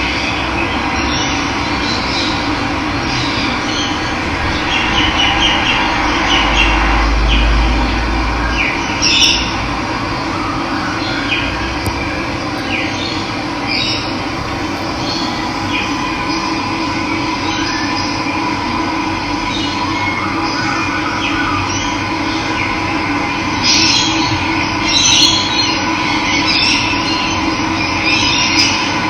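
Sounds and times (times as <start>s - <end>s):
low rumble: 1.6s - 10.6s, 11.4s - 19.7s
birds chirping: 11.0s - 18.2s
water rushing: 11.9s - 18.6s.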